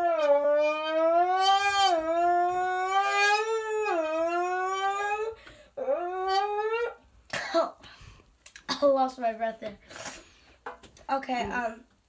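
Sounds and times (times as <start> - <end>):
buzzy note blown through can: 0.0 - 7.0.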